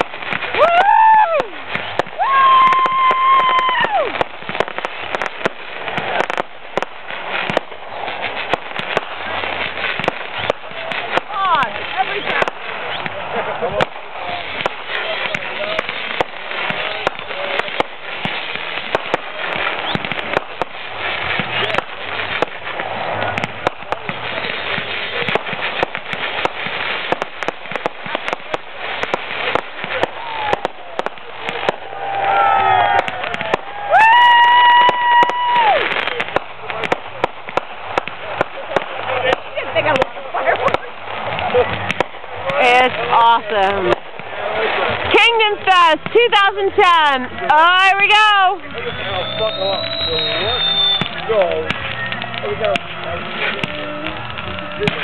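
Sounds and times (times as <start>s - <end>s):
crowd noise: 0.0s - 55.0s
fireworks cracking: 0.0s - 55.0s
spectator cheering woooo: 0.5s - 4.2s, 30.0s - 36.0s.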